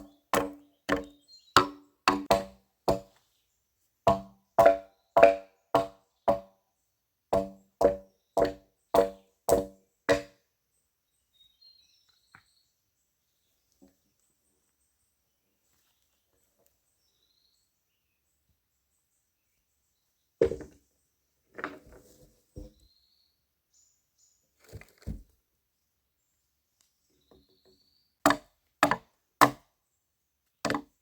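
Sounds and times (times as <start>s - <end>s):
bird chirps: 0.0s - 1.6s
tool striking wood: 0.0s - 3.1s, 4.1s - 6.5s, 7.4s - 10.4s, 28.3s - 29.6s, 30.7s - 30.9s.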